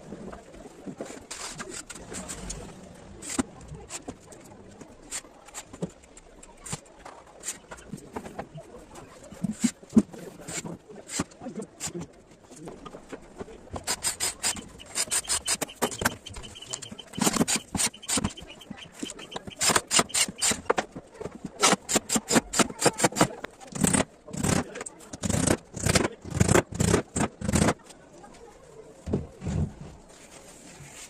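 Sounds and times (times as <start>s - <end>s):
scraping wood by hand: 13.8s - 20.9s.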